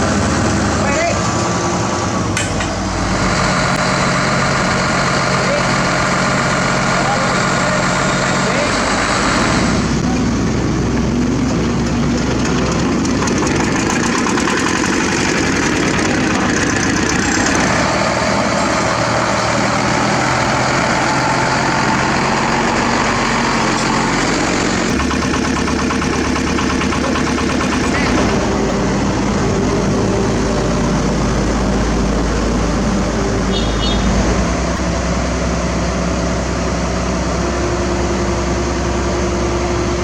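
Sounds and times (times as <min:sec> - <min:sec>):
diesel engines running: 0:00.0 - 0:40.0
deep low rumble: 0:15.4 - 0:40.0.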